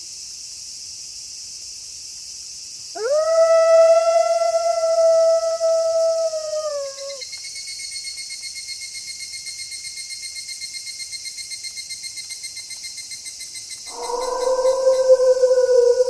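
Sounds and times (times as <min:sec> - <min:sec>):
cricket trill: 0:02.9 - 0:16.0
wolf howling: 0:03.0 - 0:07.2, 0:13.9 - 0:16.0.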